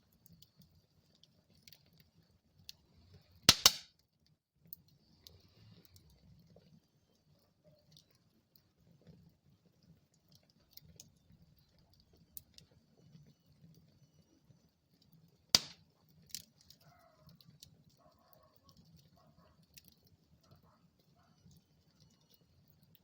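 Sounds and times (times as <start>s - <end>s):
wood fire crackling: 0.0s - 23.0s
loud sharp pop of fire: 3.5s - 3.9s, 15.6s - 15.8s.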